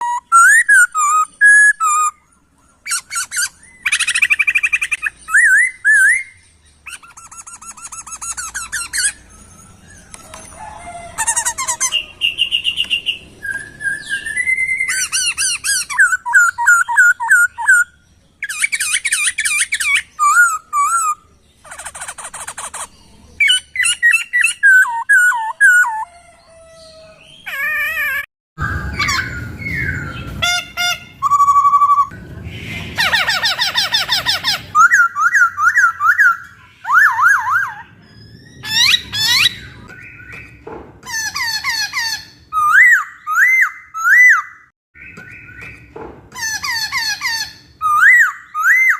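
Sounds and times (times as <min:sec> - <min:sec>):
laughingthrush singing: 0:00.0 - 0:26.1, 0:27.1 - 0:39.9.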